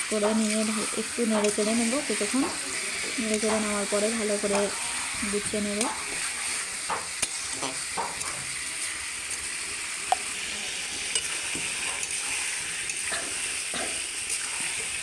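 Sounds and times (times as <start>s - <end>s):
food sizzling in oil: 0.0s - 15.0s
spatula knocking and scraping pan: 6.8s - 8.5s.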